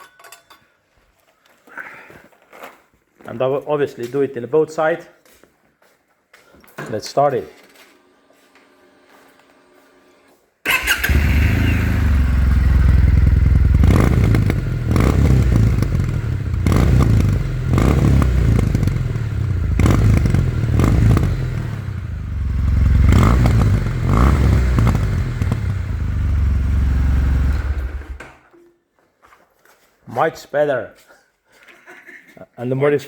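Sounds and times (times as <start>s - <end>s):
motorcycle engine starting and running: 8.8s - 28.4s.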